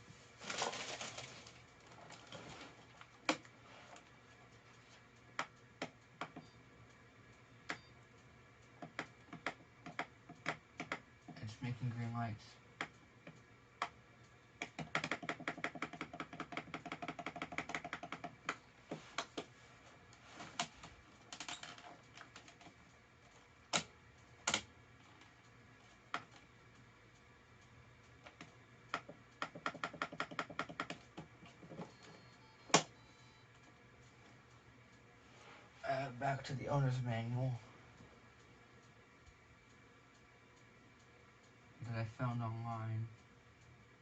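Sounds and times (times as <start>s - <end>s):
typing on computer keyboard: 8.8s - 11.0s, 14.6s - 18.6s, 28.2s - 32.0s.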